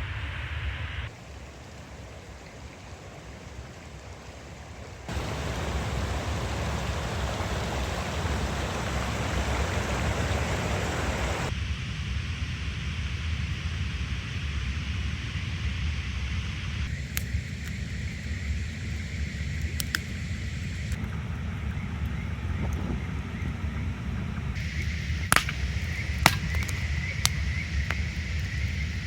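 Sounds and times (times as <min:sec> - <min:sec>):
mountain stream rushing: 0:01.1 - 0:11.5, 0:24.6 - 0:29.0.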